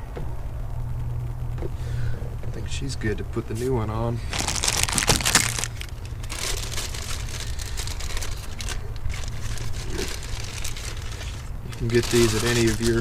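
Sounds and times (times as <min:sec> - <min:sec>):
steady low hum: 0:00.0 - 0:13.0
packaging rustling and crinkling: 0:04.3 - 0:13.0.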